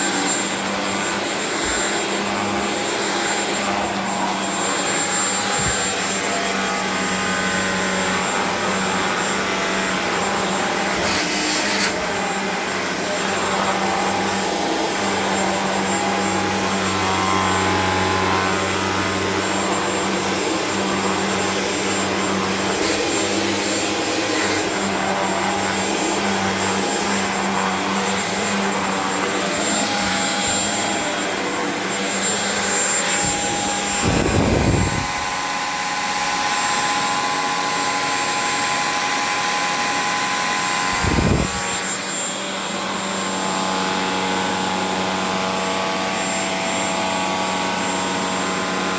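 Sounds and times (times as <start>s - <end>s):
vacuum cleaner running: 0.0s - 48.9s.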